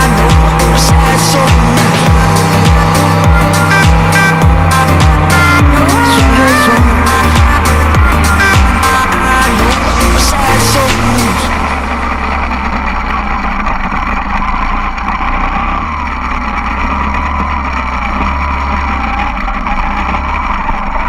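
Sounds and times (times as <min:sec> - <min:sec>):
song: 0:00.0 - 0:12.8
dirt bike engine running: 0:00.0 - 0:21.0.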